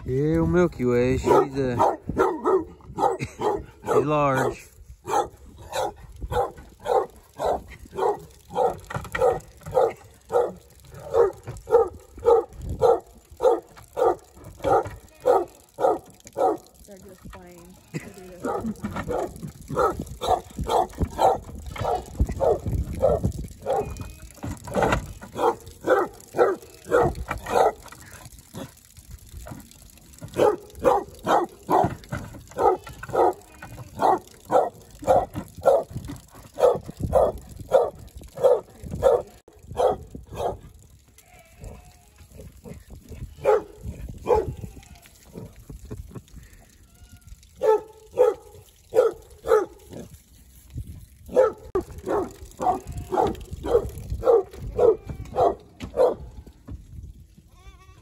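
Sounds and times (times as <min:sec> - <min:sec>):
dog barking: 0:01.2 - 0:16.7, 0:18.4 - 0:24.0, 0:25.3 - 0:27.9, 0:30.3 - 0:32.0, 0:32.6 - 0:33.4, 0:34.0 - 0:35.9, 0:36.5 - 0:40.6, 0:43.4 - 0:44.6, 0:47.6 - 0:49.8, 0:51.3 - 0:56.3.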